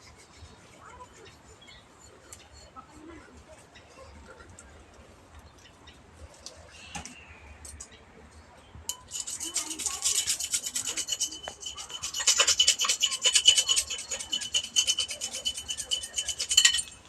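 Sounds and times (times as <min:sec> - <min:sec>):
fast abrasive scraping strokes: 0:08.9 - 0:17.0.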